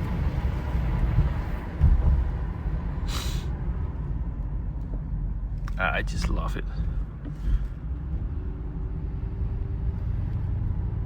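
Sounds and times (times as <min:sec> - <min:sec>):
car engine and road rumble: 0:00.0 - 0:11.0
short hiss: 0:03.1 - 0:03.5.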